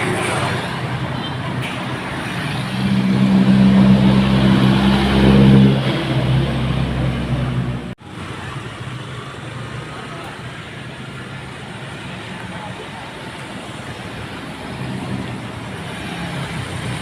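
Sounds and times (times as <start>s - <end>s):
road noise: 0.0s - 17.0s
diesel truck engine passing: 1.9s - 8.0s.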